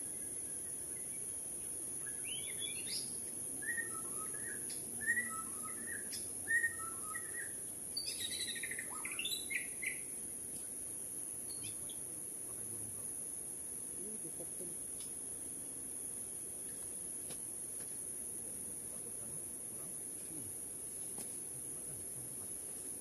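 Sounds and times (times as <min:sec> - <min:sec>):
steady high hiss: 0:00.0 - 0:23.0
bird singing whistled phrases: 0:02.0 - 0:10.0.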